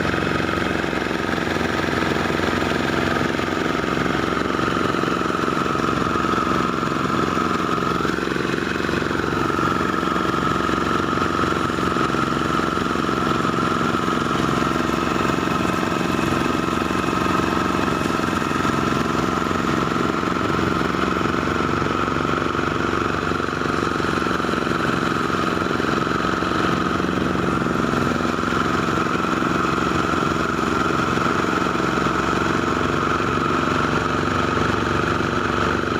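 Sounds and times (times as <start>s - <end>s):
threshing machine engine drone: 0.0s - 35.9s.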